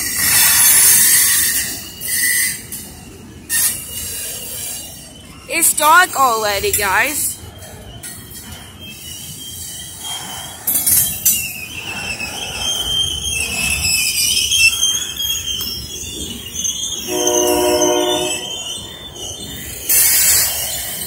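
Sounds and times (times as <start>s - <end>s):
freight train cars rolling: 0.0s - 21.0s
steel wheels squealing: 0.0s - 21.0s
train horn: 17.0s - 18.6s.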